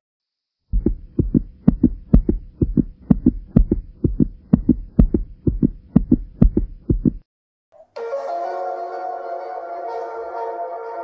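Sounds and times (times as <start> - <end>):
fast heartbeat thumps: 0.7 - 7.2.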